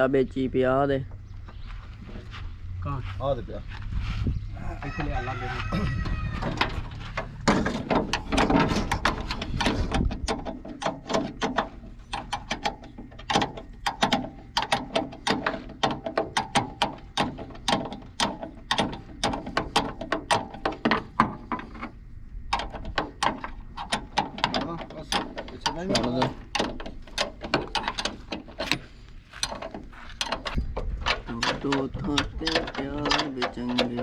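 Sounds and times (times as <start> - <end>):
spanner clicking on bolt: 22.5 - 29.6.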